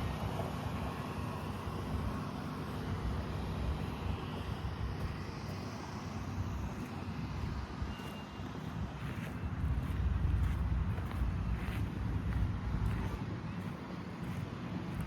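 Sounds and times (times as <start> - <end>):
tractor diesel engine running: 0.0 - 15.0
wind buffeting microphone: 8.6 - 15.0.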